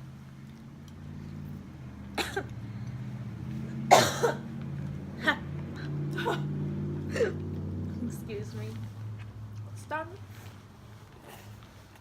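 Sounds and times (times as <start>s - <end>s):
woman coughing: 2.2s - 2.5s, 3.9s - 4.4s.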